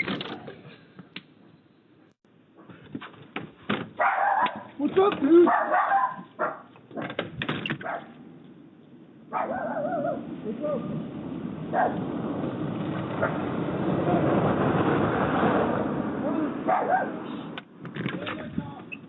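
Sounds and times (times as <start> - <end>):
dog barking: 4.0 - 4.8, 5.4 - 6.7, 7.8 - 8.2, 9.3 - 10.3, 11.7 - 12.0, 16.6 - 17.3.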